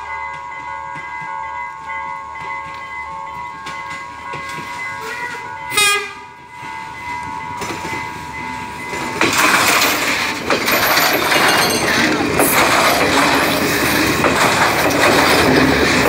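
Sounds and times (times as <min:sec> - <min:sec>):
train rumbling past: 0:00.0 - 0:16.0
train horn: 0:04.4 - 0:06.4.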